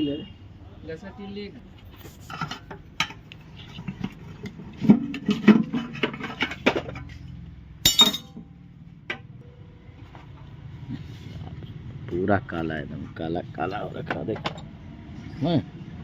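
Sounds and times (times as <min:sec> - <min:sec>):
metal tools clinking: 0:07.8 - 0:08.4.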